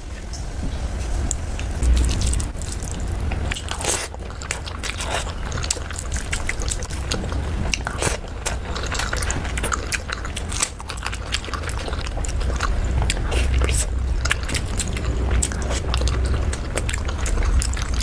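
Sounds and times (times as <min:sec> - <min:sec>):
low rumble: 0:00.6 - 0:06.0, 0:10.8 - 0:18.0
chewing with wet mouth clicks: 0:01.6 - 0:18.0.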